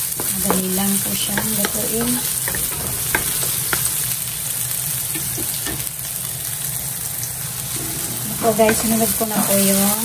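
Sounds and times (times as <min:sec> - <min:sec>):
onion and garlic sizzling in oil: 0:00.0 - 0:10.0.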